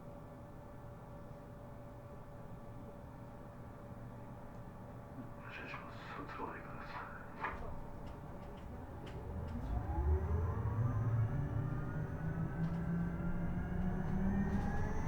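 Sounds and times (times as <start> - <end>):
bus rumble: 5.4 - 15.0.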